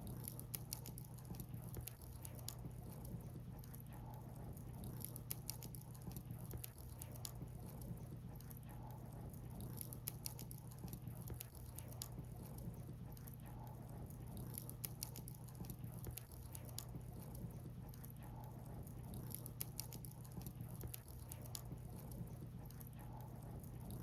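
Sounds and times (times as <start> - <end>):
wood fire crackling: 0.1 - 24.0.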